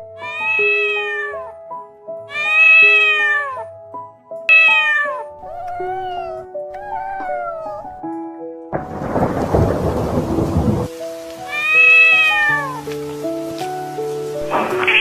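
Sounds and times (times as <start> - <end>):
soft background music: 0.0 - 15.0
cat meowing: 0.2 - 1.6, 2.3 - 3.7, 4.5 - 8.0, 11.4 - 12.9, 14.5 - 15.0.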